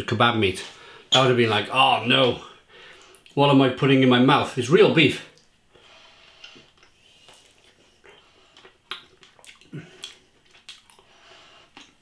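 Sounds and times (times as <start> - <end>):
man chewing wetly: 5.4 - 12.0.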